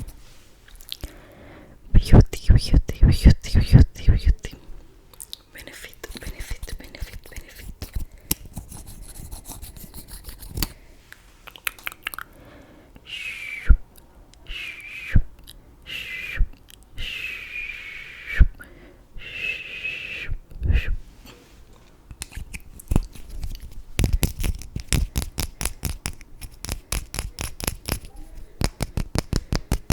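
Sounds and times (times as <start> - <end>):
makeup tools clicking and tapping: 24.0 - 29.9.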